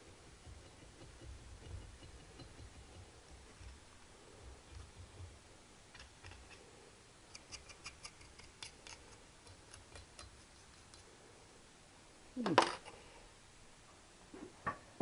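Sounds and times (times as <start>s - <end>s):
hand tool scraping metal: 0.4s - 3.7s.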